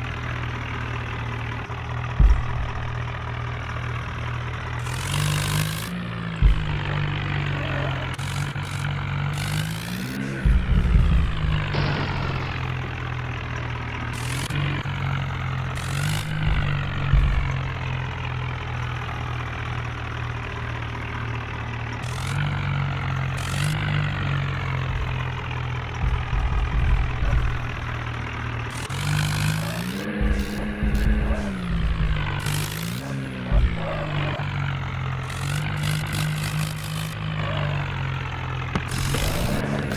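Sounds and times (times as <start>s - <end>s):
diesel tractor engine: 0.0s - 39.9s
sharp rattles: 8.1s - 37.4s, 38.2s - 39.9s.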